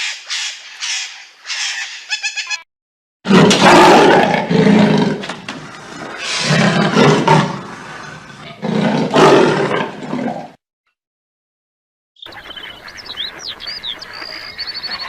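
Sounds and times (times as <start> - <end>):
large animal roaring: 3.3 - 10.6.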